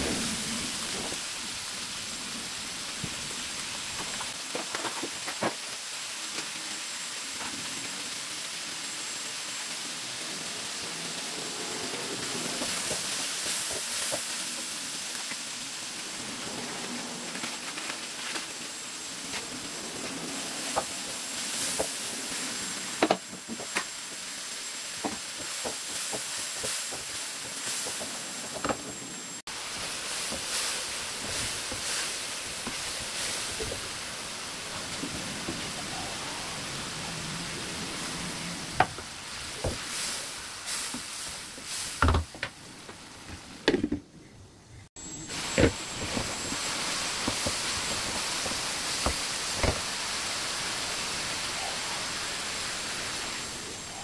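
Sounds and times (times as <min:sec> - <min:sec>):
chicken sizzling in wok: 0:00.0 - 0:43.6, 0:45.0 - 0:54.0
spatula scraping and knocking pan: 0:25.0 - 0:29.0.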